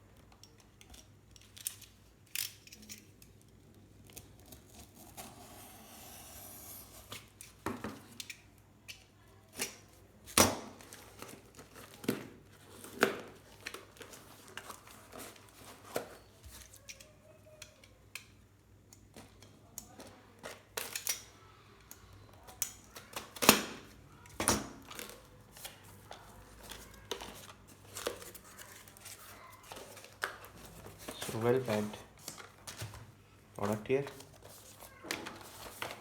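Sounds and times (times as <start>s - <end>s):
packaging crinkling and snapping: 24.8s - 33.0s.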